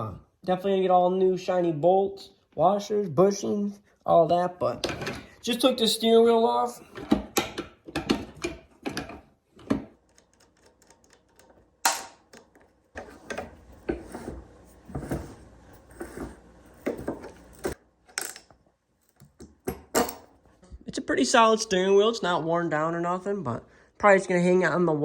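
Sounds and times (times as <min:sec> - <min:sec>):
mechanical clicking and rattling: 0:10.0 - 0:12.7.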